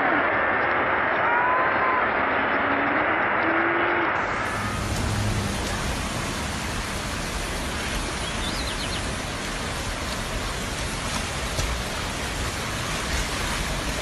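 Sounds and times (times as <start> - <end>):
rushing water: 4.0 - 14.0.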